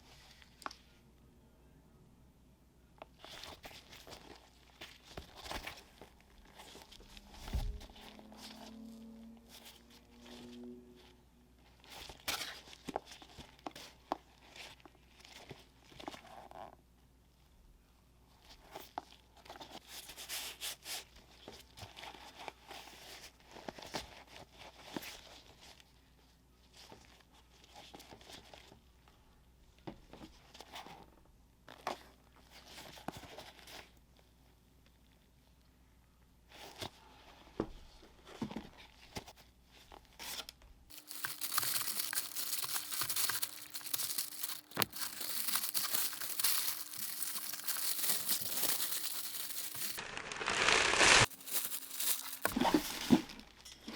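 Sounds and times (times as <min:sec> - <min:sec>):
paper packaging crinkling: 0:40.3 - 0:53.6.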